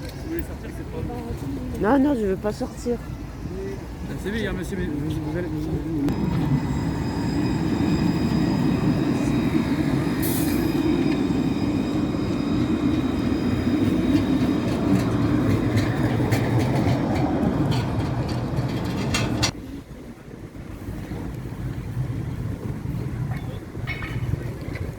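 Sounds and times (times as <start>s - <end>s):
tram wheels rumbling on rail: 0.0s - 24.9s
faint high whine: 6.0s - 14.7s.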